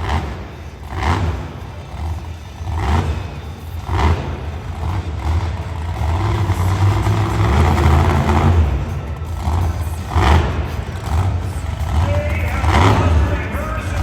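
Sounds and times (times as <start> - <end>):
monster truck engine revving: 0.0 - 14.0.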